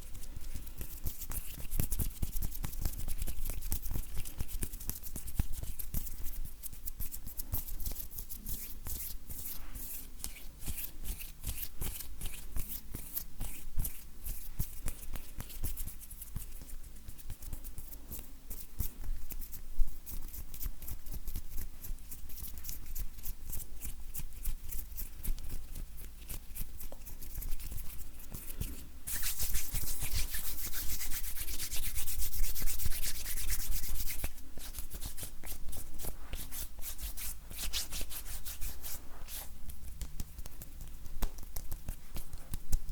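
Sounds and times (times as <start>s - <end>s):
hands rubbing together: 26.8s - 42.9s.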